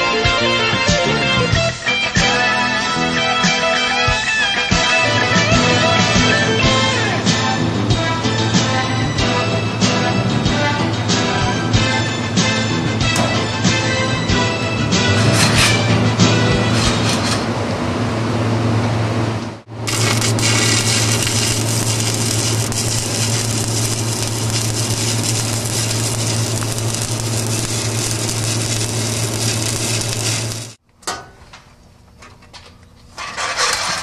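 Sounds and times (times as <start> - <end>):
low hum: 12.1 - 30.8
arc welding crackling sizzle: 19.7 - 30.8.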